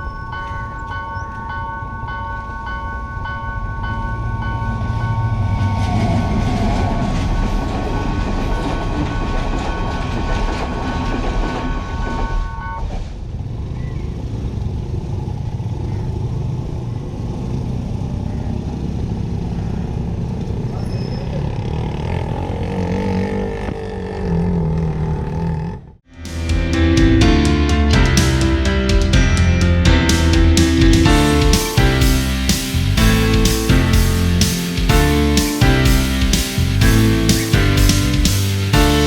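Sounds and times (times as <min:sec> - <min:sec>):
level crossing warning bell: 0:00.0 - 0:12.9
traffic rumble: 0:00.0 - 0:39.0
train wheels clacking on rails: 0:04.8 - 0:12.5.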